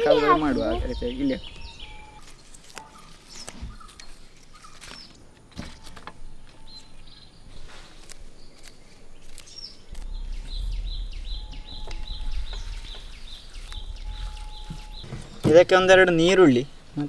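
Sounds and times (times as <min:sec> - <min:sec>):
bird chirping: 0:00.0 - 0:17.0
low rumble: 0:09.9 - 0:15.4.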